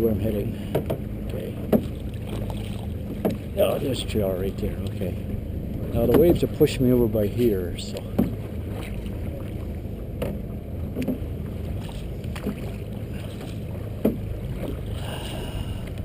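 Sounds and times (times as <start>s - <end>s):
wind and water rushing: 0.0s - 16.0s
paddle slaps on water: 0.6s - 1.0s, 1.6s - 3.5s, 6.0s - 6.5s, 7.9s - 9.5s, 10.2s - 14.9s.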